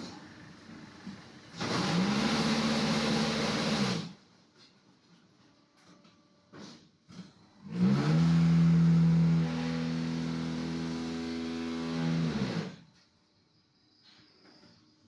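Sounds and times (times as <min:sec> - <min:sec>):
concrete block machine humming: 0:00.0 - 0:04.1, 0:07.6 - 0:12.8.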